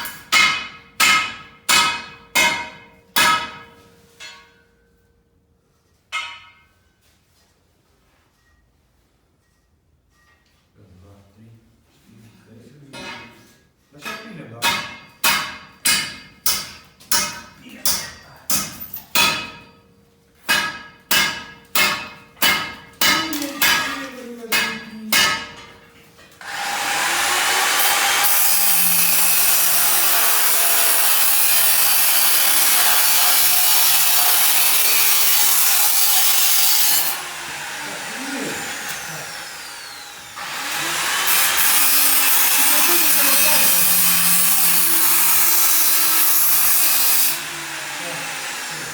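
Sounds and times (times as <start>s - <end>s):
hand saw strokes: 20.5s - 48.9s
power cutting tool running: 26.4s - 48.9s.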